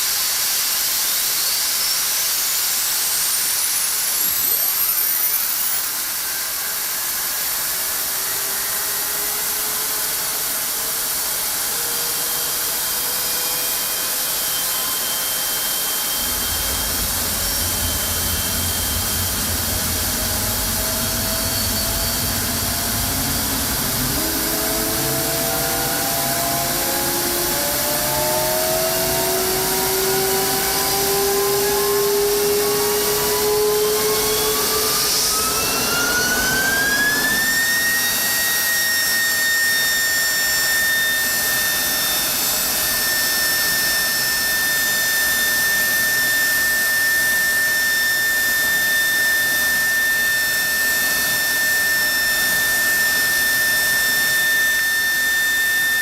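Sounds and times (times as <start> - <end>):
jet engine whine: 0.0 - 56.0
exhaust rushing: 16.0 - 38.4.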